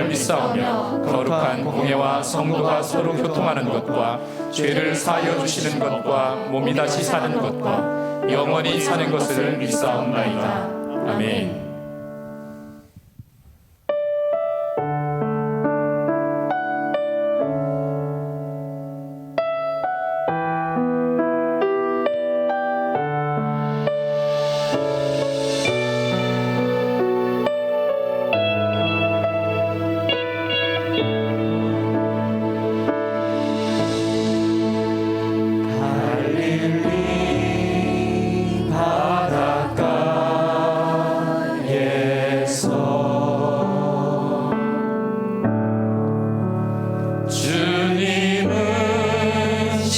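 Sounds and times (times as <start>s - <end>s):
piano chords: 0.0s - 12.9s, 13.9s - 49.9s
band playing slow keyboard chords: 23.8s - 39.5s.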